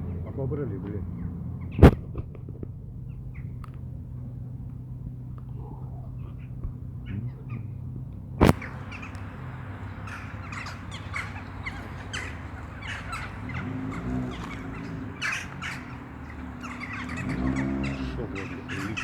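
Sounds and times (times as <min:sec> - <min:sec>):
steady low hum: 0:00.0 - 0:19.0
birds calling in high notes: 0:05.4 - 0:19.0
sharp click: 0:08.4 - 0:09.2.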